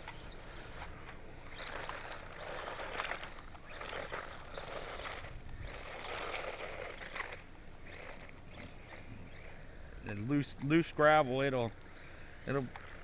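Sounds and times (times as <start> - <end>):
toy truck tyres swishing through grass: 0.0 - 9.4.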